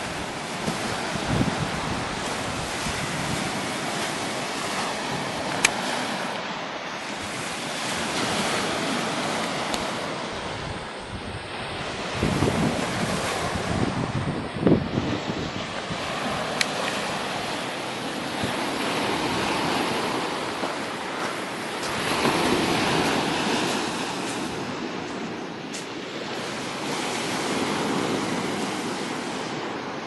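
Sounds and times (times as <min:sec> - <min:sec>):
surf washing on shore: 0:00.0 - 0:30.0
wind buffeting microphone: 0:00.0 - 0:30.0.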